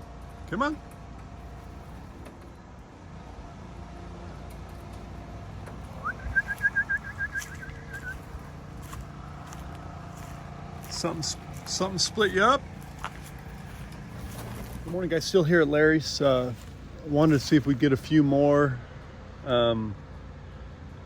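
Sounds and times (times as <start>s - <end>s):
high trilled whistle: 6.0s - 8.3s.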